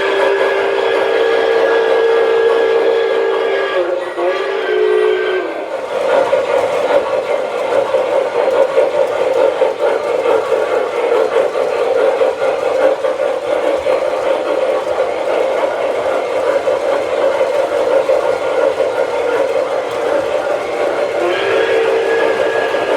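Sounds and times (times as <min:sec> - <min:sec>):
model train steam whistle: 0:00.0 - 0:06.3, 0:19.4 - 0:22.9
model train running on track: 0:00.0 - 0:22.9.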